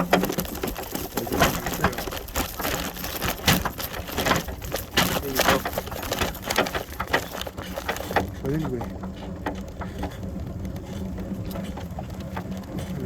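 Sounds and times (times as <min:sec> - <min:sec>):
bicycle rattling on bumpy trail: 0:00.0 - 0:13.0.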